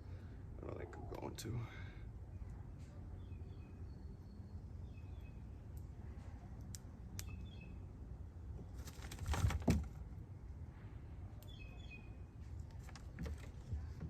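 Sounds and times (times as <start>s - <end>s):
faint bird chirps: 0.9s - 5.6s, 7.2s - 7.9s, 11.4s - 12.4s.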